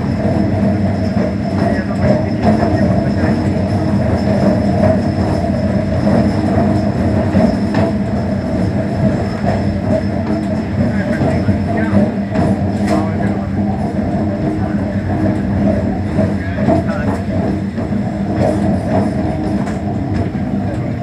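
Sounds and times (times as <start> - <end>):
train wheels rumbling on track: 0.0 - 21.0
wheels clacking over rail joints: 0.0 - 21.0.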